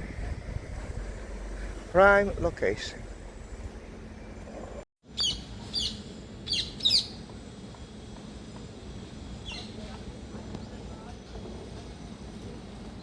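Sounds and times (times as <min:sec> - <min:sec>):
low outdoor background: 0:00.0 - 0:13.0
bird chirping: 0:05.2 - 0:07.2.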